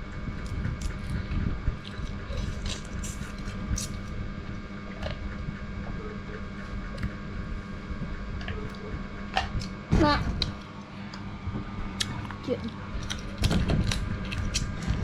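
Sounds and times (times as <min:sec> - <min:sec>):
steady hum: 0:00.0 - 0:15.0
crab shell cracking and chewing: 0:13.0 - 0:14.8.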